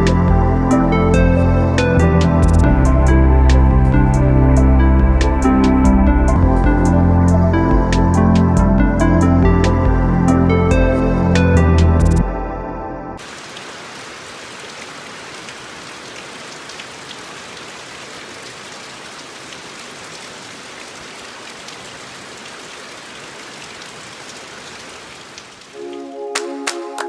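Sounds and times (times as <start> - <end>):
background music: 0.0 - 13.2, 25.8 - 27.0
steady rain falling: 13.2 - 27.0.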